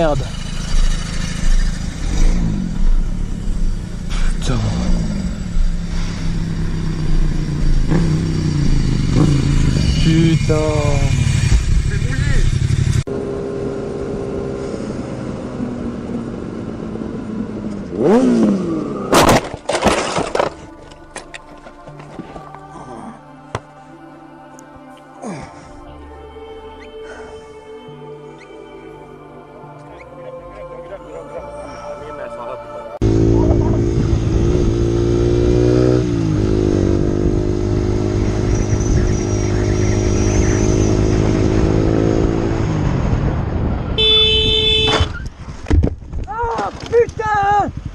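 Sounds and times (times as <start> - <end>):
motorcycle scraping and clattering: 0.0 - 4.5, 17.6 - 22.6
motorcycle engine running: 0.0 - 19.0, 33.0 - 45.2
engine whine: 0.0 - 23.1, 29.7 - 45.4.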